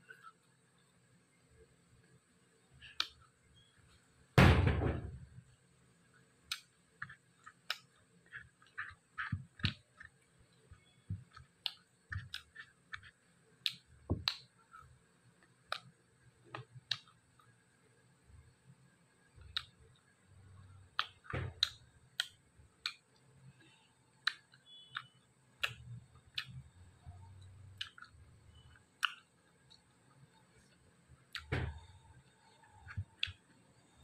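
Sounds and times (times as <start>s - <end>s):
loud thump: 4.4s - 5.2s
chewing with mouth clicks and smacks: 24.2s - 26.7s, 27.8s - 31.5s.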